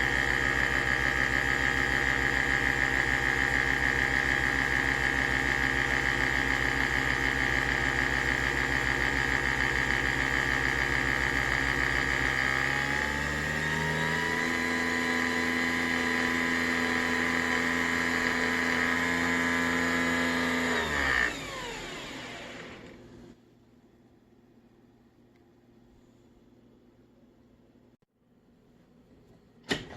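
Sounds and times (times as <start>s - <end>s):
coffee machine motor whirring: 0.0s - 23.3s.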